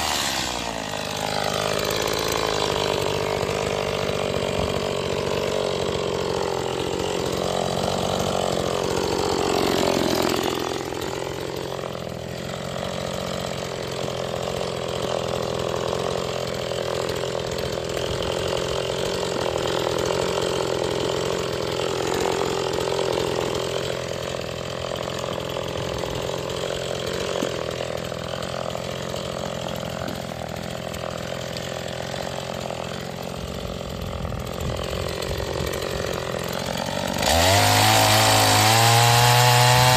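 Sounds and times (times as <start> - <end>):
chainsaw running: 0.0 - 39.9.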